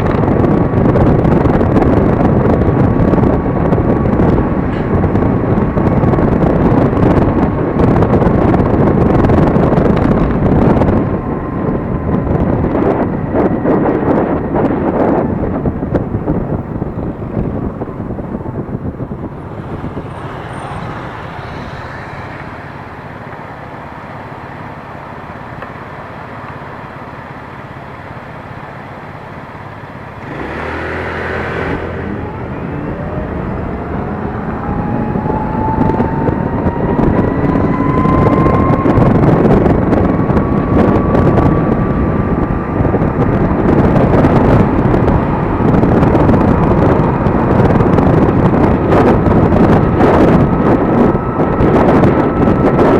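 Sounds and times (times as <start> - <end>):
traffic hum: 0.0 - 52.9
wind rushing over microphone: 0.0 - 52.9
electric motor whine: 15.4 - 23.8.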